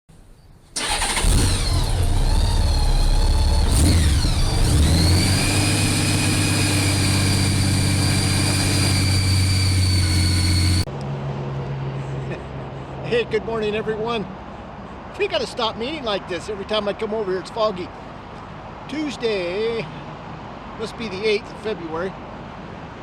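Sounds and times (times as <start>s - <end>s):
motorcycle engine starting and idling: 0.8s - 10.9s.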